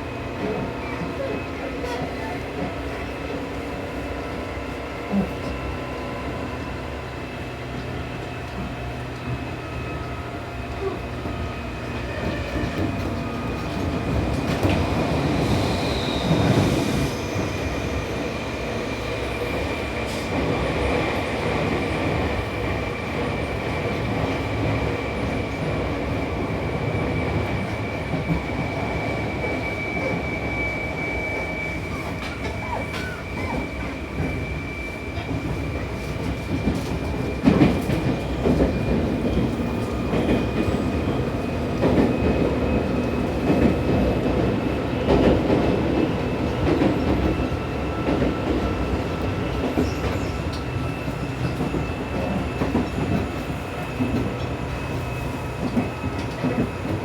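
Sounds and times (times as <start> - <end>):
high wheel squeal: 27.6 - 37.4.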